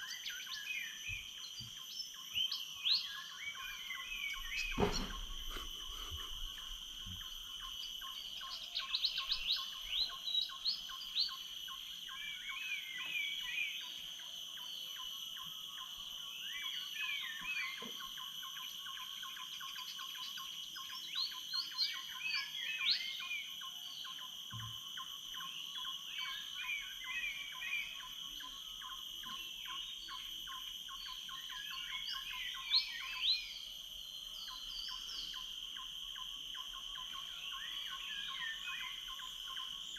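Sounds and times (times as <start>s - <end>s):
birds chirping and whistling: 0.0s - 11.4s
high insect drone: 0.0s - 39.9s.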